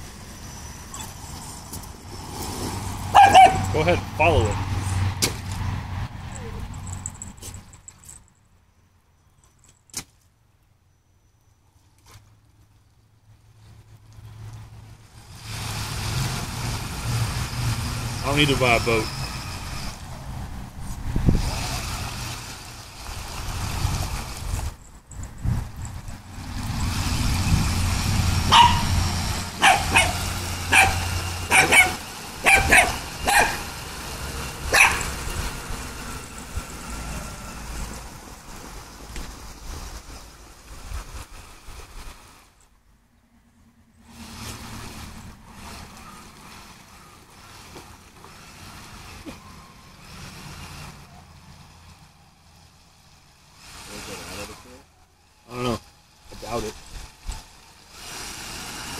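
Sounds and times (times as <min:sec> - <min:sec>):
dog barking: 0:03.1 - 0:03.8, 0:28.5 - 0:28.9, 0:29.6 - 0:33.7, 0:34.7 - 0:35.1
toy car motor hum: 0:15.1 - 0:40.2, 0:44.1 - 0:52.1, 0:53.4 - 0:58.9
wind rumbling on microphone: 0:19.4 - 0:31.6, 0:34.2 - 0:42.6
water churning and sloshing: 0:44.1 - 0:51.2.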